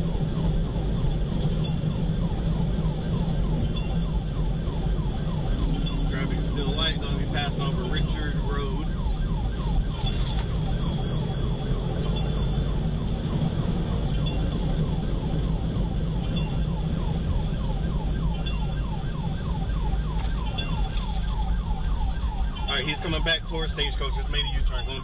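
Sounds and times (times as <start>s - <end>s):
car engine rumble: 0.0s - 25.0s
police siren yelping: 0.0s - 25.0s
road noise: 0.0s - 25.0s.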